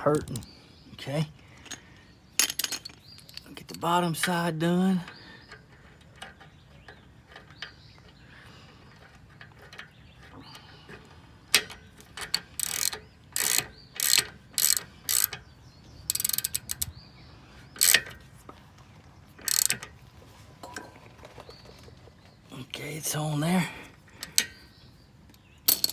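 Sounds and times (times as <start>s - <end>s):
ratchet wrench clicking: 11.6s - 15.4s, 16.1s - 16.9s, 17.8s - 18.2s, 19.4s - 19.9s, 25.7s - 25.9s.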